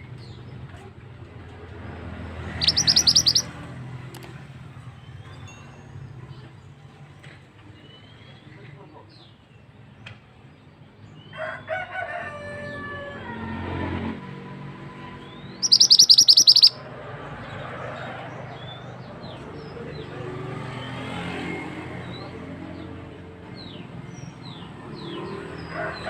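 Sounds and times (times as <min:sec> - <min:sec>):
bird chirps: 0:02.5 - 0:03.5, 0:15.3 - 0:16.8
lower bird call: 0:02.5 - 0:03.5, 0:15.3 - 0:16.8
rapid high bird trill: 0:02.5 - 0:03.5, 0:15.6 - 0:16.8.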